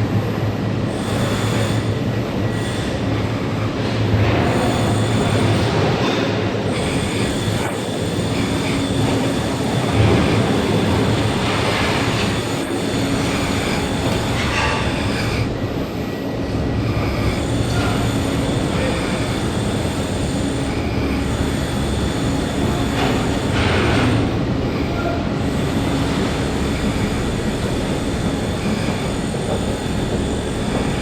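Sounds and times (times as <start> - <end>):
train wheels on rails: 24.9 - 31.0.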